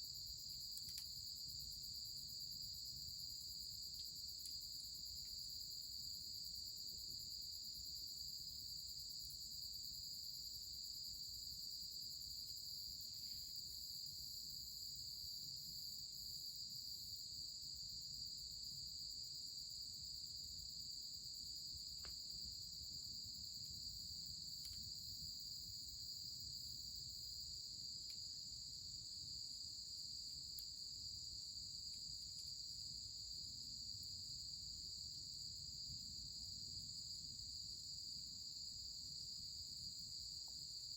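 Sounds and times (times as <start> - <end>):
faint clicks: 0.8 - 1.1.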